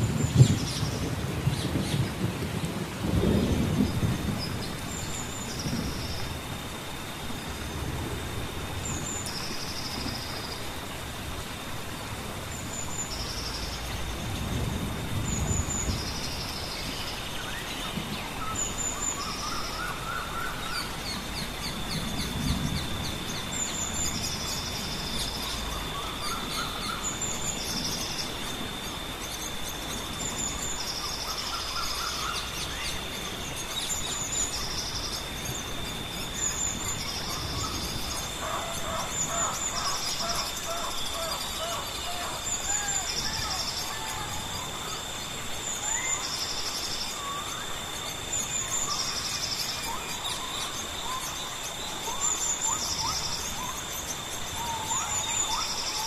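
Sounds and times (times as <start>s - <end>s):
background hiss: 0.0s - 56.0s
wild birds calling: 12.6s - 56.0s.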